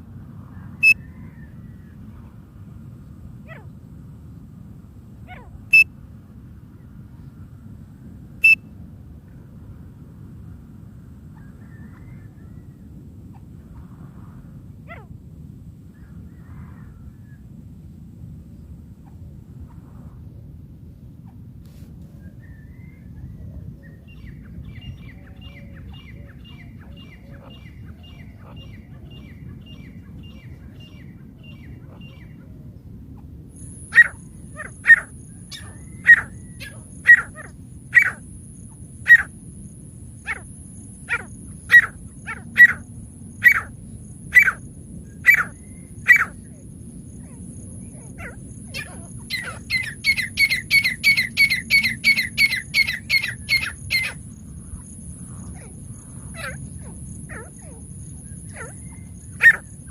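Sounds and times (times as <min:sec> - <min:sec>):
francolin calling: 0:00.8 - 0:01.4, 0:05.3 - 0:05.9, 0:08.4 - 0:08.6, 0:24.1 - 0:32.4, 0:33.6 - 0:59.9.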